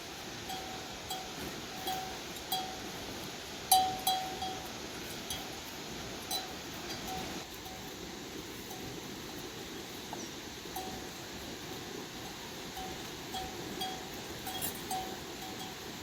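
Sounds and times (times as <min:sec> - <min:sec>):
livestock bells clinking: 0:00.0 - 0:09.0, 0:10.1 - 0:11.5, 0:12.1 - 0:16.0.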